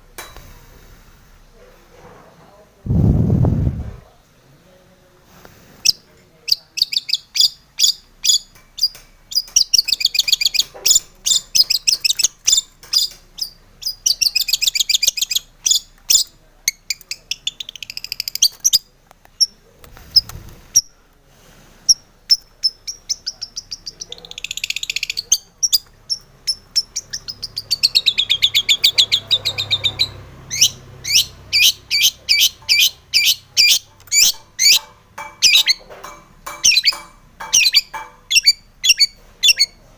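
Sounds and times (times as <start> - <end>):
bird chattering and trilling: 5.9 - 19.6, 21.9 - 35.8, 36.5 - 39.8.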